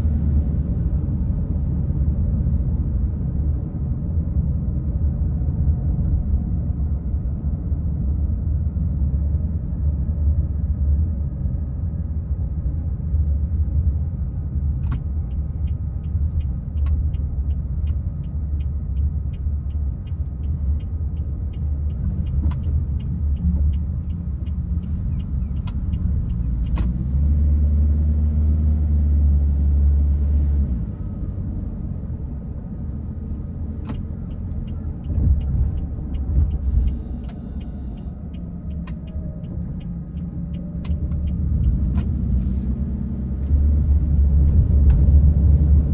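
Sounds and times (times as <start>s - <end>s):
car engine and road noise: 0.0s - 45.9s
faint regular ticking: 33.9s - 42.4s.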